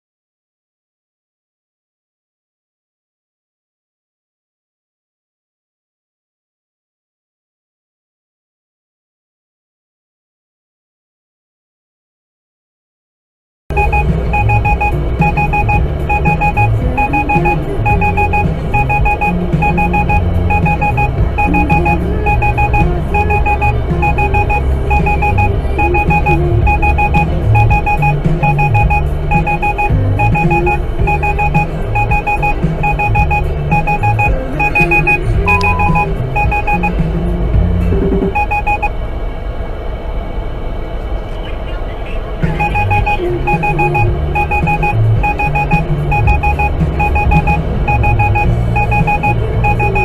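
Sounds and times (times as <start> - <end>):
rapid electronic beeping: 13.7 - 39.0, 41.6 - 50.0
loud low rumbling bass: 13.7 - 39.5, 42.4 - 50.0.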